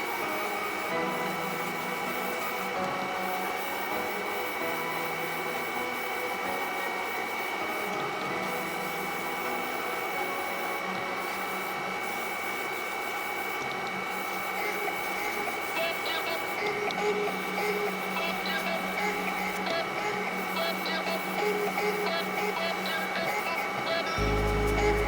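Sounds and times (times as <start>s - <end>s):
airbrush hissing paint spray: 0.7s - 25.0s
air compressor humming: 6.8s - 25.0s.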